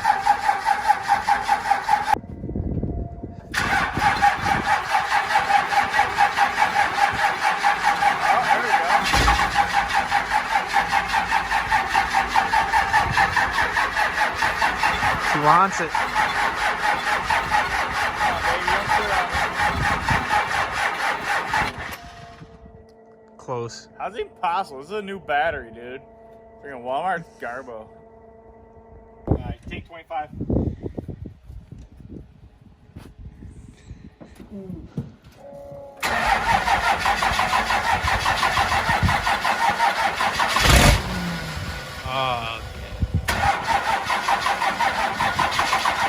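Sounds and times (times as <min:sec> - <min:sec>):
diesel engine cranking on starter: 0:00.0 - 0:02.2, 0:03.4 - 0:22.6, 0:36.0 - 0:46.0.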